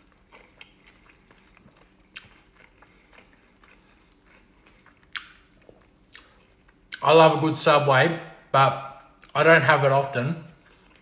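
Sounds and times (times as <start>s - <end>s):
person chewing food: 0.0s - 7.1s, 10.5s - 11.0s
wet mouth clicks: 5.0s - 7.0s.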